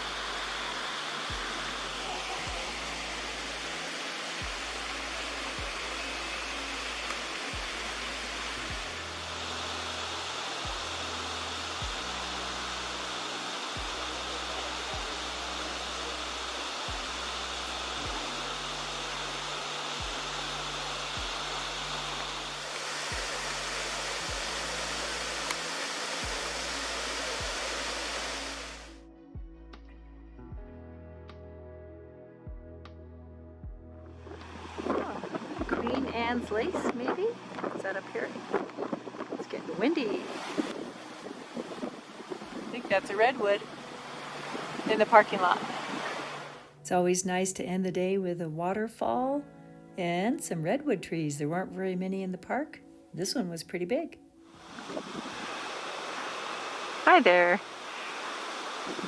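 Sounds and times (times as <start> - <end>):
waterfall rushing: 0.0 - 29.0, 40.1 - 46.8, 54.6 - 59.0
low background music: 0.0 - 55.8.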